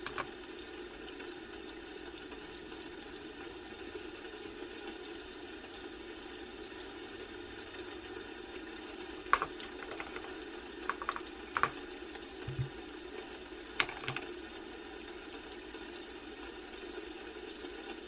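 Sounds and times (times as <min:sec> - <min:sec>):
computer keyboard keystrokes: 0:00.0 - 0:00.3, 0:09.4 - 0:10.3, 0:10.9 - 0:11.8, 0:12.5 - 0:12.7, 0:13.8 - 0:14.3.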